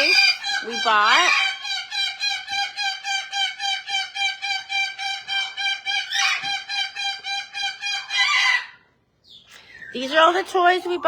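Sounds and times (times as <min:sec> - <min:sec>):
parrot calling: 0:00.0 - 0:11.0.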